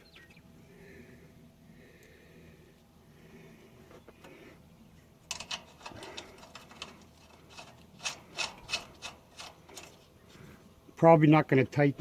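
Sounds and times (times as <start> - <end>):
metal bolt clicks and scrapes: 5.2 - 10.5.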